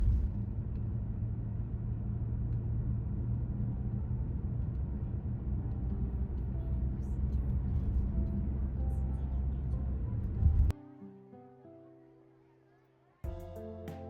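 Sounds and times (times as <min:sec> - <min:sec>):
car driving on road: 0:00.0 - 0:10.7.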